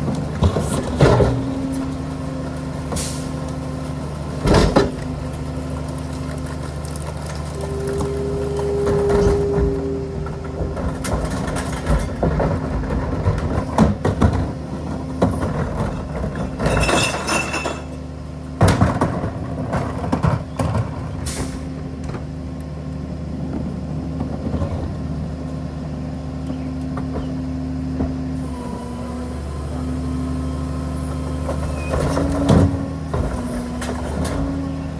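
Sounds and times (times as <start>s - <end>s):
engine whine: 0.0s - 34.9s
garbage truck engine running: 0.0s - 34.9s
metal clanks and bangs: 7.6s - 18.0s.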